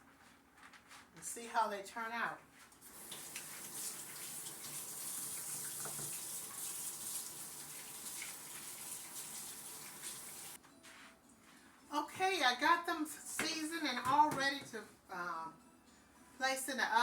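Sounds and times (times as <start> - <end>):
water running from faucet: 2.8 - 10.6.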